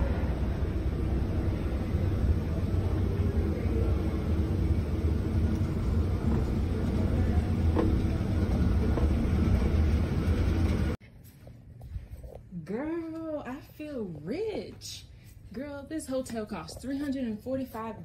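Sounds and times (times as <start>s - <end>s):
low rumble of moving vehicle: 0.0s - 11.0s.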